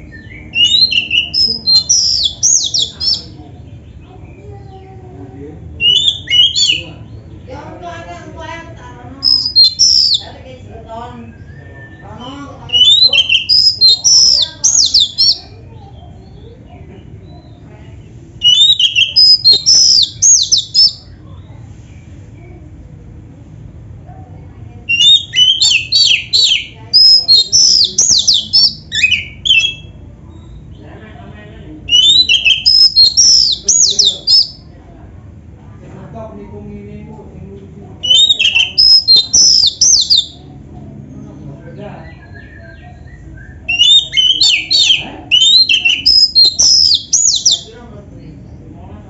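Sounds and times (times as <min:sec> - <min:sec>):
bird singing whistled notes: 0:00.0 - 0:03.4, 0:05.8 - 0:06.9, 0:09.2 - 0:10.3, 0:11.2 - 0:15.6, 0:18.4 - 0:21.1, 0:24.9 - 0:30.6, 0:31.9 - 0:34.7, 0:38.0 - 0:40.4, 0:42.0 - 0:47.7
faint bird chirps: 0:00.0 - 0:07.4, 0:09.2 - 0:10.4, 0:11.1 - 0:22.8, 0:24.6 - 0:30.8, 0:31.8 - 0:34.8, 0:38.0 - 0:40.5, 0:41.8 - 0:47.7
low background hum: 0:00.0 - 0:49.0.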